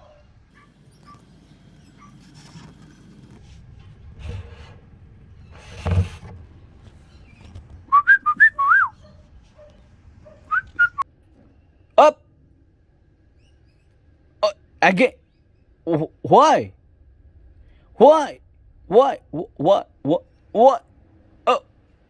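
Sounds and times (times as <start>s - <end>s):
cockatiel whistled chirps: 7.9s - 9.0s, 10.5s - 11.0s.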